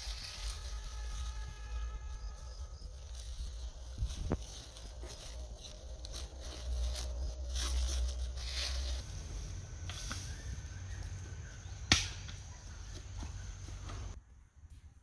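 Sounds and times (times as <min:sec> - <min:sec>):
rustling and scraping: 0:00.0 - 0:11.2
low rumble: 0:00.1 - 0:12.8.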